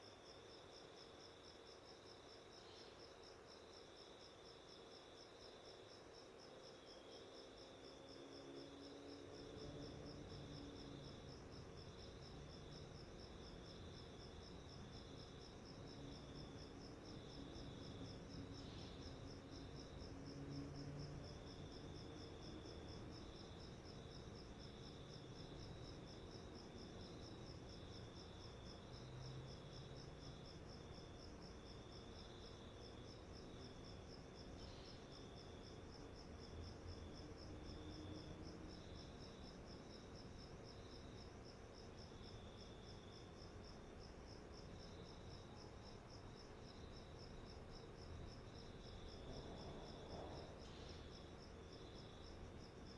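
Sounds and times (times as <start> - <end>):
cricket trilling: 44.5 - 52.9.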